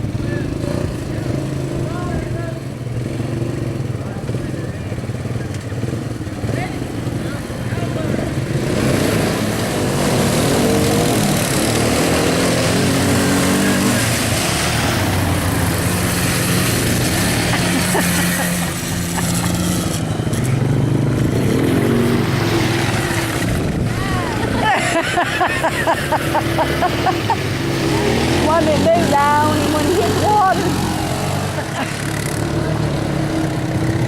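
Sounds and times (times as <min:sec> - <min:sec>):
atv engines revving: 0:00.0 - 0:34.0
steady rushing noise: 0:06.1 - 0:34.0.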